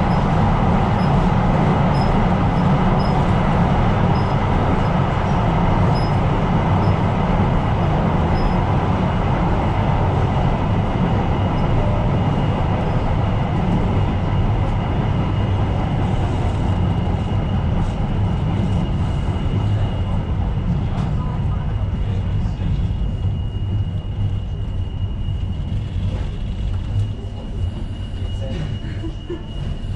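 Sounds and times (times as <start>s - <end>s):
train wheels rumbling on rail: 0.0s - 29.9s.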